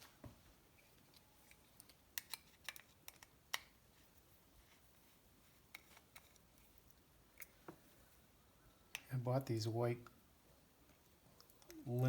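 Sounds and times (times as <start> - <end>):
small parts clicking and tapping: 1.0 - 3.8.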